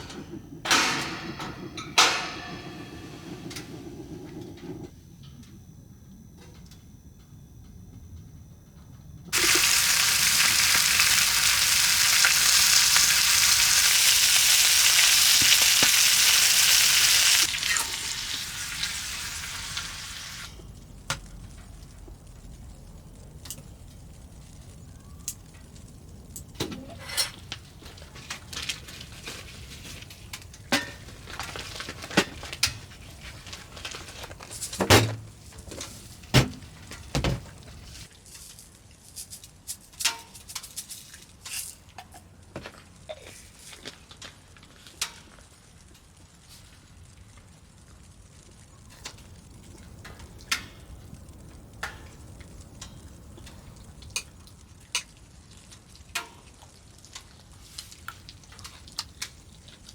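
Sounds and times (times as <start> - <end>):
food sizzling in a pan: 9.3 - 20.6.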